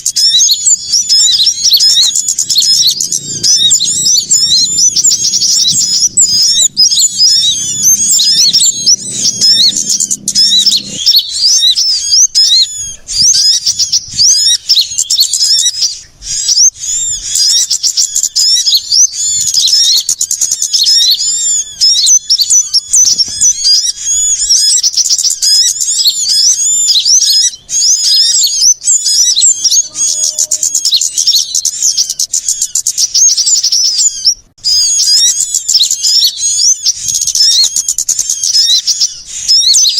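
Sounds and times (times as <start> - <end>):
small songbirds chirping: 0.0 - 39.9
faint low hum: 0.2 - 17.4.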